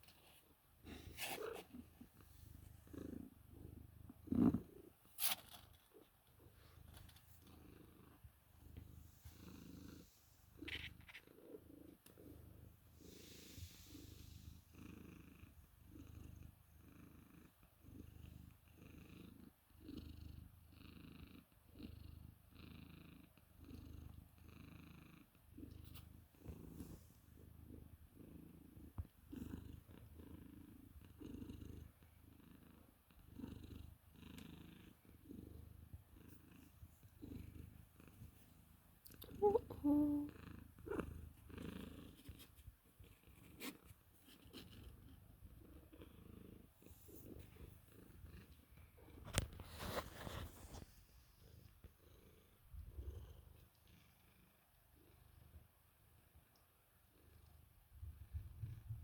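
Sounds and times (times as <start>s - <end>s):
cat purring: 0.0s - 59.0s.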